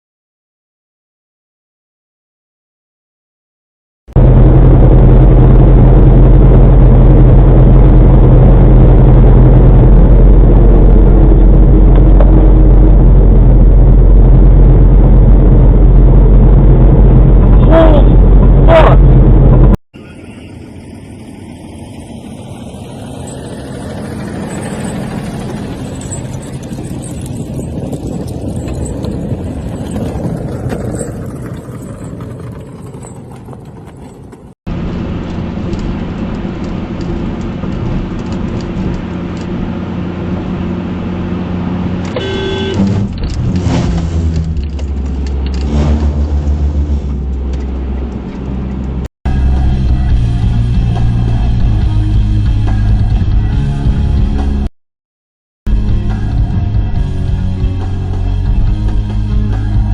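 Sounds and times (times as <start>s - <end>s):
road and engine noise: 4.2s - 54.7s, 55.7s - 59.9s
traffic noise: 5.9s - 51.6s.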